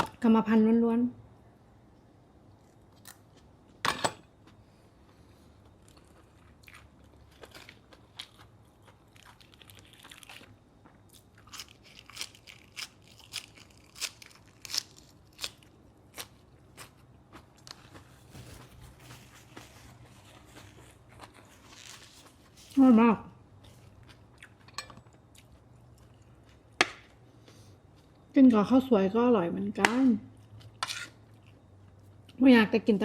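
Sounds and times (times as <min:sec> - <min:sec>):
chewing crunches and wet clicks: 0:04.5 - 0:18.2, 0:23.6 - 0:27.2.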